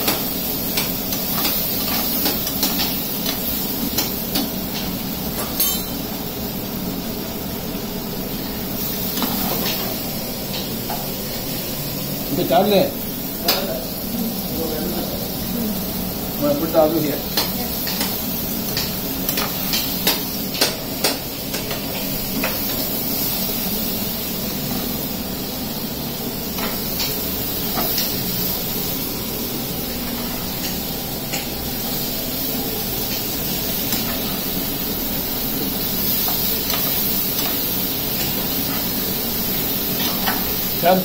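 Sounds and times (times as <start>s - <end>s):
potatoes sizzling in a pan: 0.0s - 41.0s
metal spoon tapping a pan: 5.4s - 6.0s.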